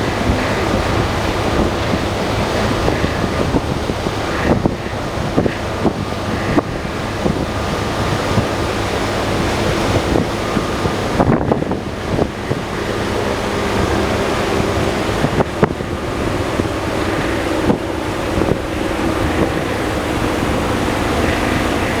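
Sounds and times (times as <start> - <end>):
helicopter rotor and engine: 0.0 - 22.0
turbine tone: 0.0 - 22.0
wind on microphone: 0.0 - 22.0.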